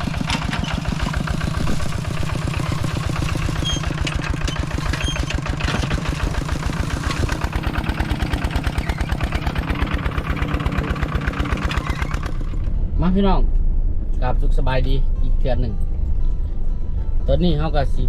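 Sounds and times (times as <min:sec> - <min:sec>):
vehicle engine idling: 0:00.0 - 0:17.7.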